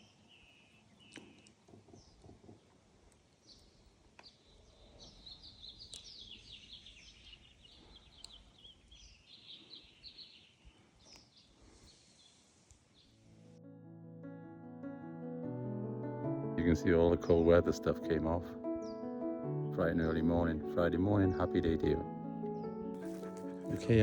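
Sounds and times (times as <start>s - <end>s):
small birds chirping: 0.0s - 13.5s, 17.3s - 20.6s, 21.4s - 24.0s.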